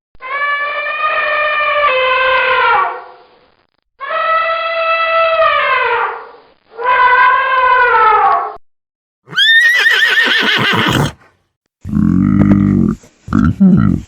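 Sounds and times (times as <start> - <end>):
horse neighing: 9.3 - 11.2.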